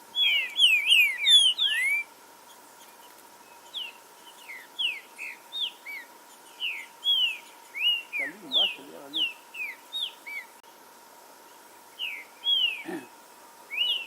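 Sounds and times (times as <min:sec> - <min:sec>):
bird whistling song: 0:00.1 - 0:02.1, 0:03.6 - 0:10.5, 0:12.0 - 0:12.9, 0:13.7 - 0:14.0
faint high bird chirps: 0:00.1 - 0:10.6, 0:11.5 - 0:13.1, 0:13.7 - 0:14.0.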